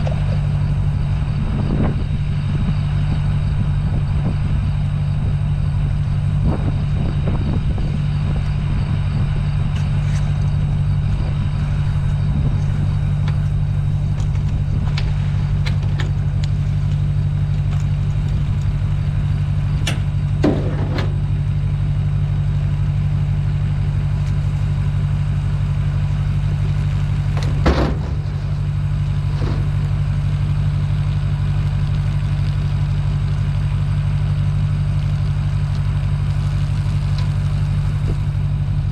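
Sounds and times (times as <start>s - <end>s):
vehicle engine running: 0.0s - 38.9s
knocks and rattles: 27.3s - 28.6s.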